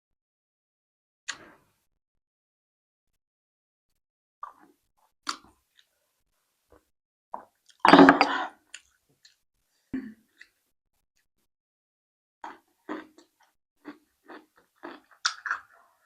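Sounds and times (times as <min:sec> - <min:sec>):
mouth smacks and chewing: 0:12.4 - 0:15.8
noisy biting and chewing: 0:12.4 - 0:15.8.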